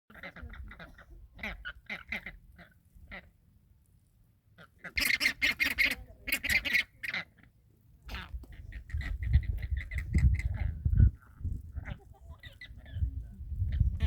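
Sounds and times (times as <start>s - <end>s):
flamingos honking: 4.6s - 7.5s
wind rumble on microphone: 8.1s - 14.0s.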